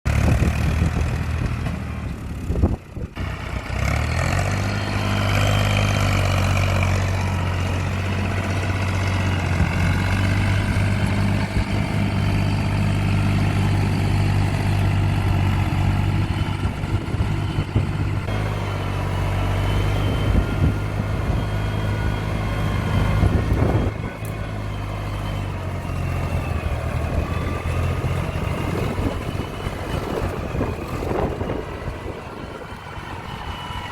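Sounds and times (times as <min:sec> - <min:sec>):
tractor diesel engine under load: 0:00.1 - 0:33.9.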